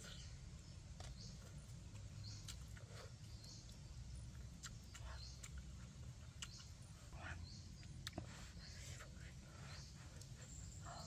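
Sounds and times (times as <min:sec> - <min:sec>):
low background rumble: 0:00.0 - 0:11.0
chewing and wet mouth clicks: 0:01.9 - 0:07.0, 0:07.7 - 0:08.3.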